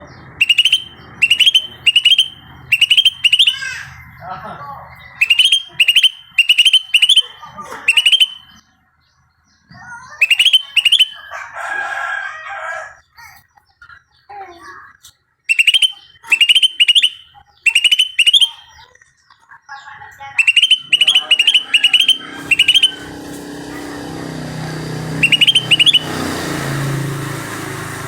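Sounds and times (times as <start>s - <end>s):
bird calling with sharp rising notes: 0.1s - 4.2s, 4.9s - 8.8s, 9.6s - 11.6s, 15.4s - 18.9s, 20.4s - 28.0s
harsh bird call: 0.1s - 4.2s, 4.9s - 8.7s, 9.9s - 11.7s, 15.5s - 18.9s, 20.2s - 28.0s.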